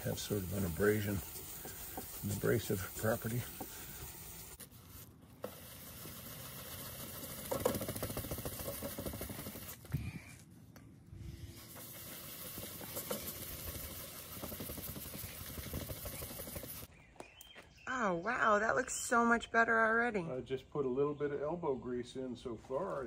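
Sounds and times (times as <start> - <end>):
wet sponge scrubbing plastic: 0.0 - 9.9, 11.5 - 16.9.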